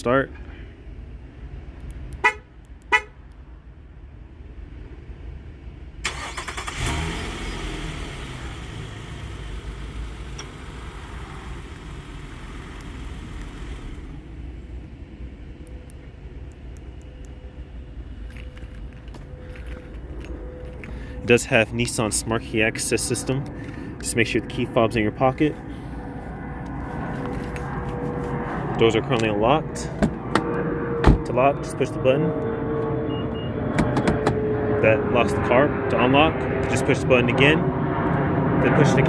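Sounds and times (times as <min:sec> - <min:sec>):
car horn chirps: 0:02.2 - 0:03.2
car engine starting and idling: 0:06.0 - 0:17.2.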